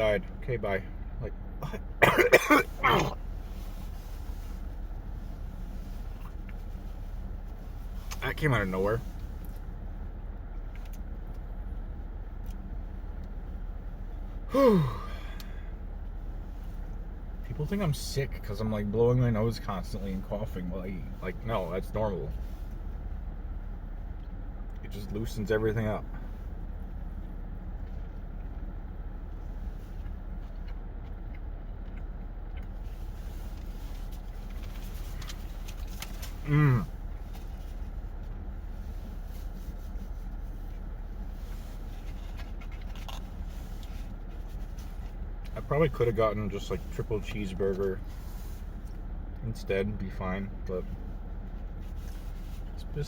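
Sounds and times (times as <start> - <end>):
low steady hum: 0.0 - 53.0
person sighing: 14.5 - 15.7.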